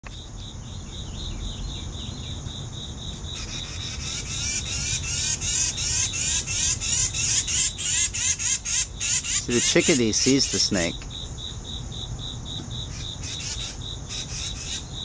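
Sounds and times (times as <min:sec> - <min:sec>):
insects trilling: 0:00.0 - 0:15.0
bird scolding with harsh chirps: 0:03.3 - 0:11.0, 0:12.7 - 0:14.9.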